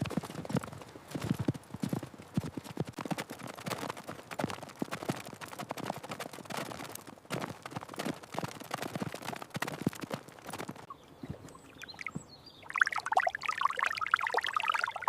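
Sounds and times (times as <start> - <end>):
horse hooves clopping: 0.0 - 11.7.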